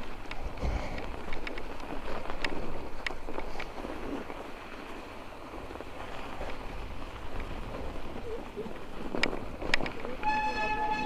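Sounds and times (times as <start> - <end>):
bike clicks and rattles: 0.0 - 4.8, 8.8 - 10.2
bike tyres rolling over snow: 0.0 - 11.0
wind on microphone: 0.0 - 11.0.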